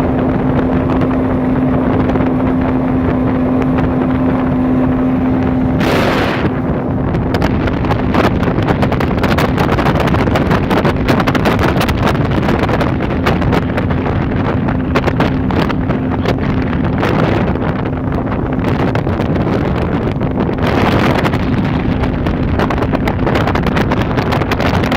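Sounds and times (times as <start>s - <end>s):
outboard motor running: 0.0s - 24.9s
wind buffeting the microphone: 0.0s - 24.9s
hissing noise rush: 5.6s - 6.9s.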